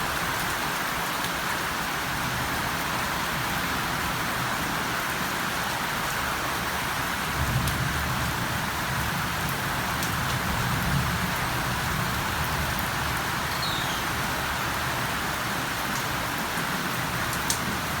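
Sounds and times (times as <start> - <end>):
steady rain falling: 0.0 - 18.0
sharp raindrop ticks: 17.2 - 17.7.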